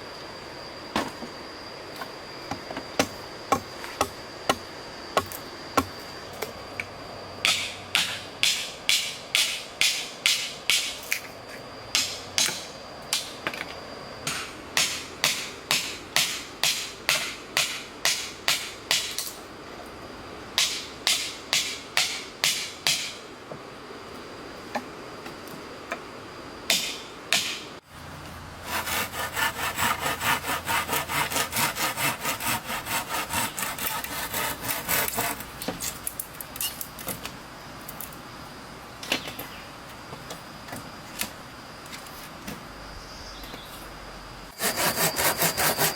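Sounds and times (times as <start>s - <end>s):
hand saw cutting wood: 28.6s - 35.5s, 44.6s - 45.9s.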